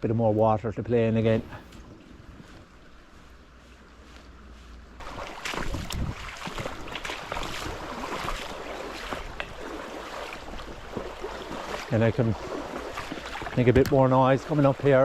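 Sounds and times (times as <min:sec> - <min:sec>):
splashing from wading: 0:05.0 - 0:15.0
water rushing over rocks: 0:05.0 - 0:15.0.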